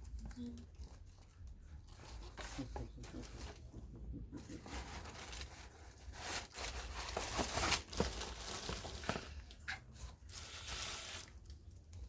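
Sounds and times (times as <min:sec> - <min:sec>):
packaging rustling and crinkling: 0:04.6 - 0:12.0.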